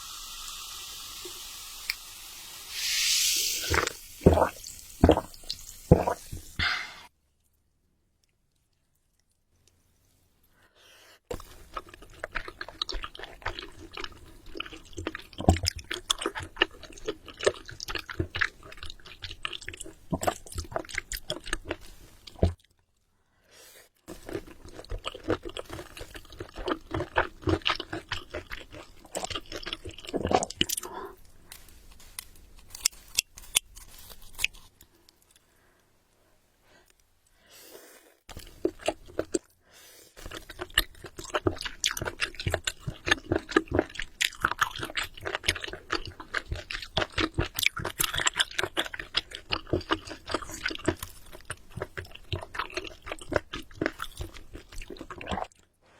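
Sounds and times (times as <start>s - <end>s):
chewing and biting food: 11.3s - 22.7s, 24.1s - 30.9s, 38.3s - 39.5s, 40.2s - 55.7s.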